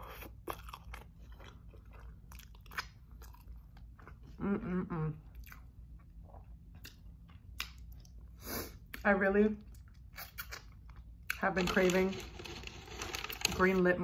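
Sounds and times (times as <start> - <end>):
chewing with wet mouth clicks: 0.1 - 4.3, 5.3 - 11.4.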